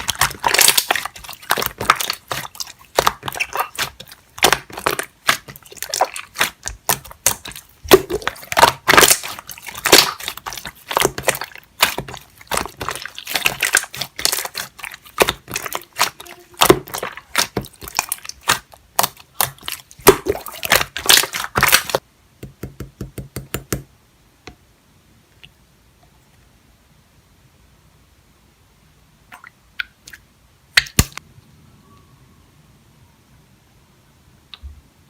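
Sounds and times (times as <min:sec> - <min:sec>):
slime squishing with wet clicks: 0:00.0 - 0:22.0, 0:30.8 - 0:31.2.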